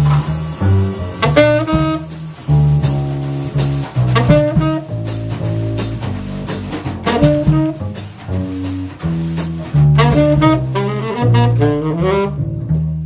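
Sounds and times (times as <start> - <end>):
tenor saxophone: 0.0 - 6.0, 7.0 - 7.8, 9.9 - 12.6
drum cymbal strokes: 0.0 - 10.4
double bass line: 0.0 - 13.0.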